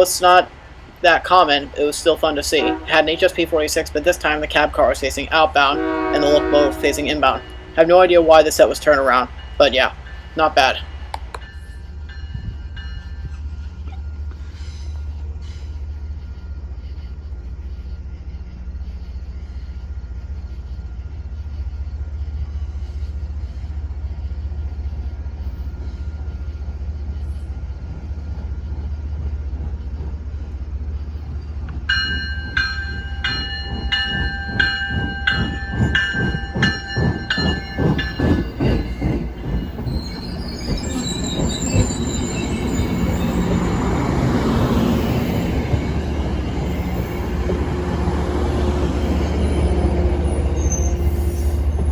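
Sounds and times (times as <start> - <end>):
diesel locomotive engine rumble: 0.0 - 51.9
train bell ringing: 1.2 - 14.8, 31.7 - 51.9
train wheel squeal: 2.5 - 51.9
wheels clicking over rail joints: 22.4 - 51.9.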